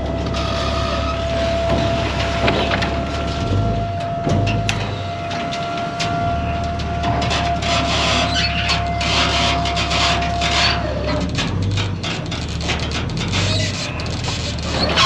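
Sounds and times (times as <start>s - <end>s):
steady whine: 0.0s - 12.0s
steady engine hum: 0.0s - 15.0s
wood scraping and creaking: 0.0s - 15.0s.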